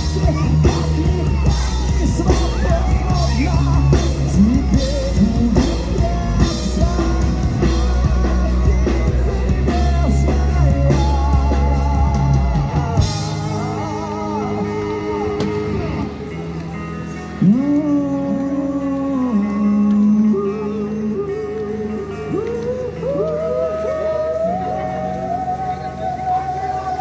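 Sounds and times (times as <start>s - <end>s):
drum kit: 0.0s - 18.5s
bass guitar: 0.0s - 27.0s
electric guitar: 0.0s - 27.0s
wavering melody line: 0.0s - 27.0s.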